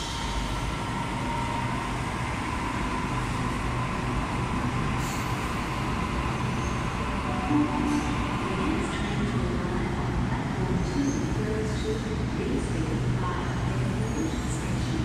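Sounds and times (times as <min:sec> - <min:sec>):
electric train whine: 0:00.0 - 0:09.3.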